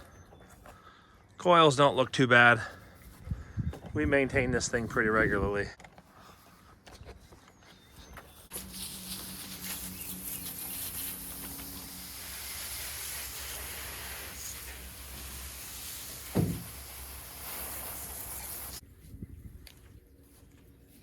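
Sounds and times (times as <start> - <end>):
hose nozzle spraying water: 8.5 - 18.8
short thump: 16.3 - 16.7.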